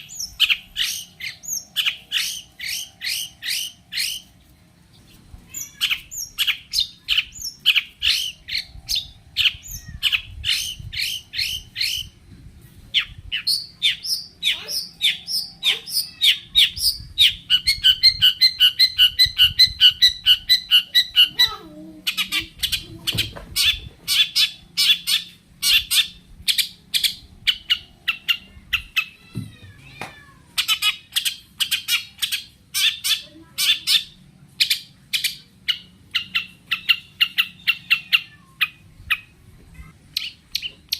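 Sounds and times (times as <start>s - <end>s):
shrike chattering song: 0.0s - 4.4s.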